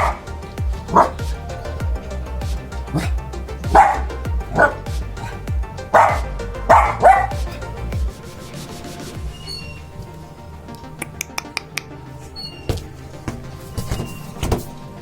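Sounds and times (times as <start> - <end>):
background music with bass beat: 0.0 - 15.0
dog barking: 0.9 - 1.2, 4.6 - 7.3.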